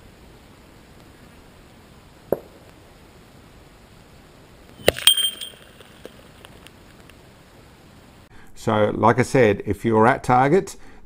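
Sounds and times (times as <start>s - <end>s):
low hiss: 0.0s - 11.0s
ringing tone: 4.8s - 6.2s.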